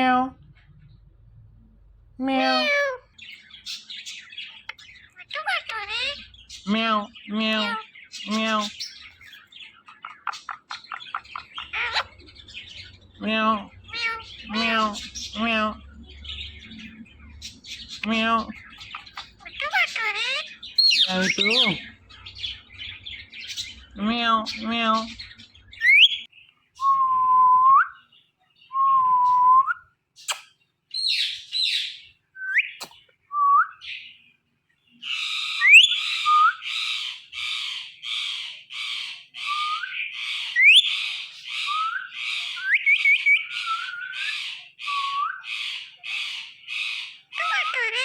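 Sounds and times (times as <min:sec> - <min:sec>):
harsh repeated parrot calls: 0:02.2 - 0:03.2, 0:05.1 - 0:08.8, 0:10.0 - 0:12.3, 0:13.2 - 0:15.8, 0:18.0 - 0:21.9, 0:35.2 - 0:48.0
parrot whistling: 0:39.5 - 0:40.0.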